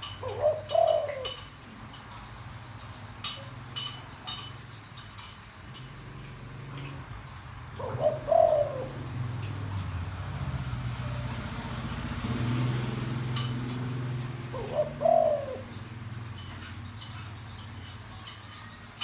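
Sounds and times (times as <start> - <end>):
dove cooing: 0.0 - 1.9, 7.7 - 9.8, 13.5 - 18.0.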